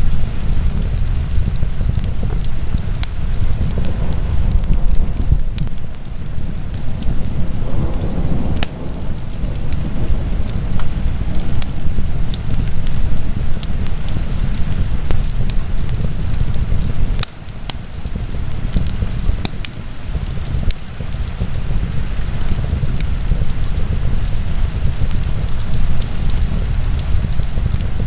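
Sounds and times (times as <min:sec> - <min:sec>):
low rumble of flames: 0:00.0 - 0:28.0
wood fire crackling: 0:00.0 - 0:28.0.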